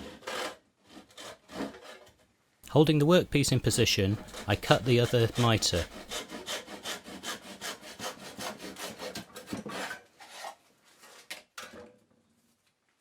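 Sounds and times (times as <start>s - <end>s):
hand saw cutting wood: 0.0s - 2.2s, 4.0s - 11.2s.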